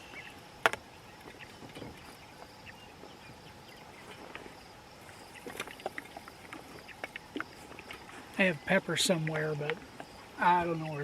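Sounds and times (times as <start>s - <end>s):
faint crickets chirping: 0.0s - 11.0s
small ticks and chirps: 0.0s - 11.0s.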